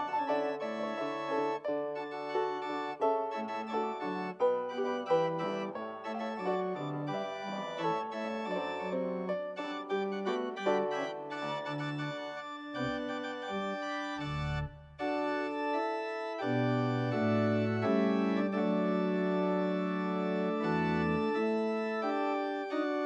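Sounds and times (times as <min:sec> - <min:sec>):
organ playing chords: 0:00.0 - 0:23.0.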